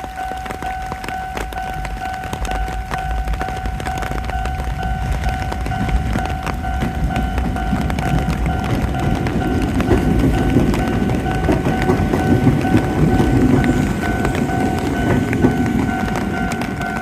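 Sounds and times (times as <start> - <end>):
train rumbling along rails: 0.0 - 17.0.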